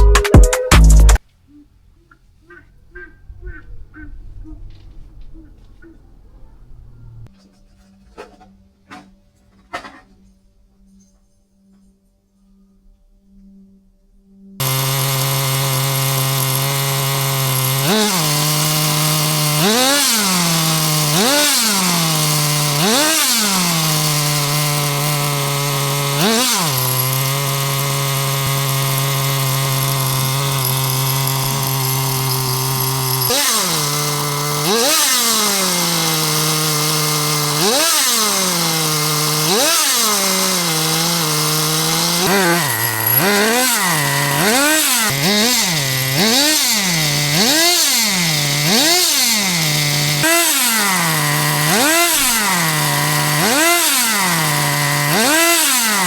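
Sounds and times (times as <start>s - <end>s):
small engine idling and revving: 14.6s - 56.0s.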